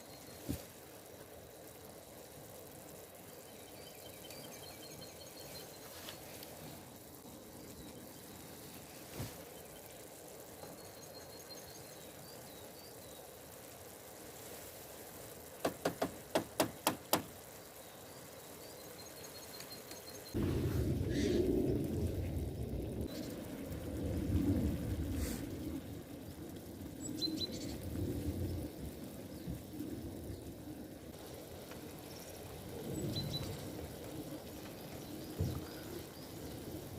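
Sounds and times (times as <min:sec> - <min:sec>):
sharp knocks: 0:15.6 - 0:17.3.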